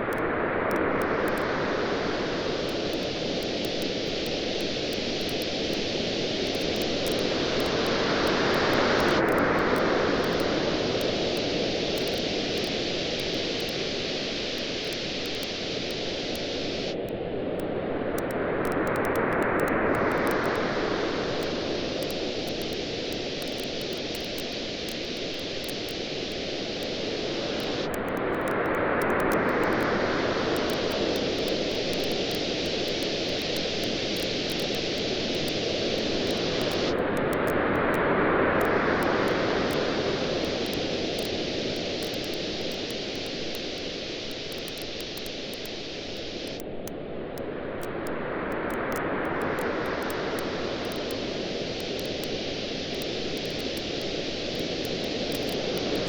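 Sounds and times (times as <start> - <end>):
faint campfire crackling: 0.0 - 56.0.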